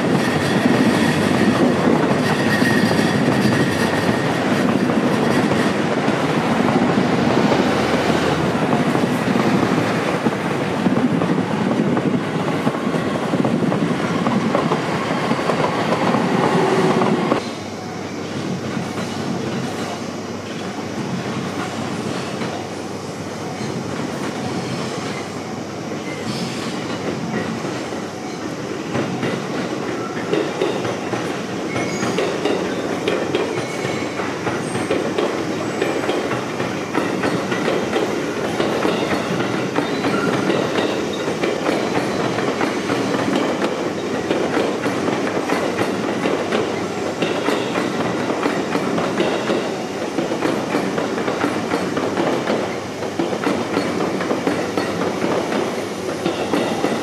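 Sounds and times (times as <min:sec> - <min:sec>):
train wheels clattering over rail joints: 0:00.0 - 0:17.4, 0:26.0 - 0:57.0.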